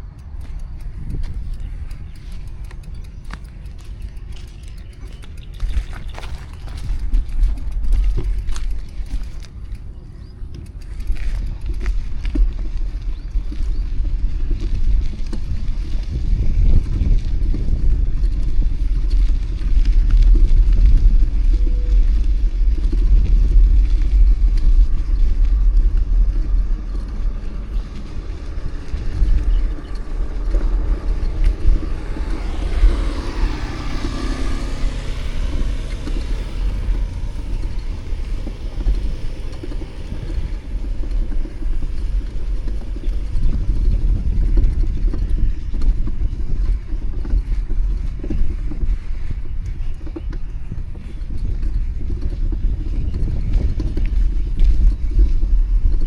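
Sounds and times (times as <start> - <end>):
city street traffic: 0.0 - 55.8
wind rumble on microphone: 0.0 - 56.0
vehicle passing close by: 25.3 - 49.5.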